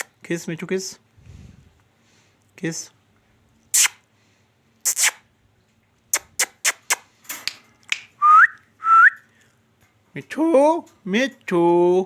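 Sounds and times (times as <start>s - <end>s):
parrot making kissing sounds: 3.7s - 4.1s, 4.8s - 5.3s, 6.1s - 7.1s.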